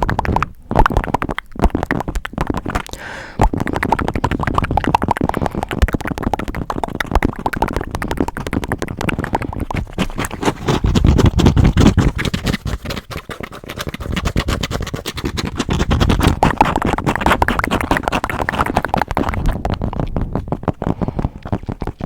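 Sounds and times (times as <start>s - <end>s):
scratching on a microphone: 0.0s - 22.0s.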